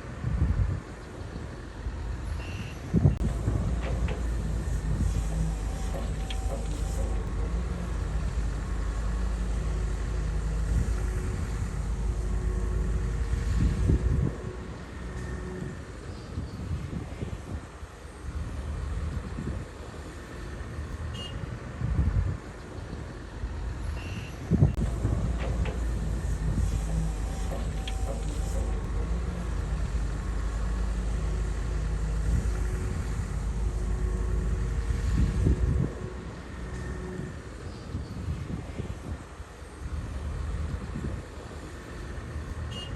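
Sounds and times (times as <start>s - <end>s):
diesel engine rumbling: 0.0s - 42.9s.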